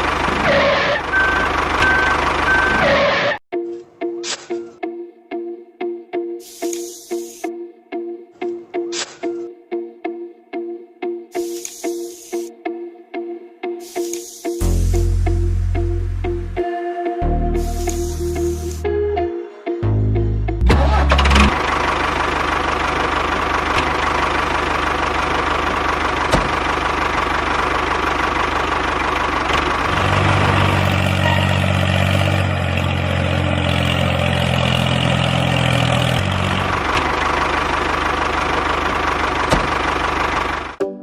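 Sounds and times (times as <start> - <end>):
engine running steadily: 0.0 - 2.8, 20.6 - 40.8.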